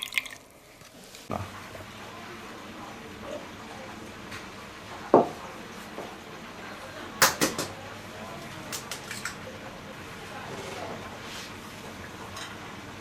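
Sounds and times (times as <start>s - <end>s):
utensils clinking: 8.8s - 9.4s.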